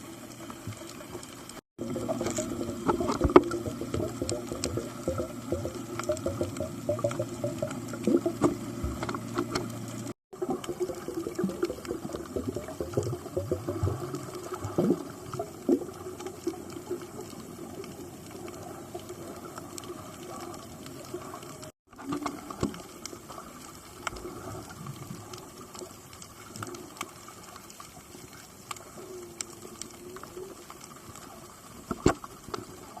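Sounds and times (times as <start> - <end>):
low murky hum: 0.0 - 27.5
underwater water movement: 0.0 - 33.0
sharp underwater clicks: 0.4 - 18.6.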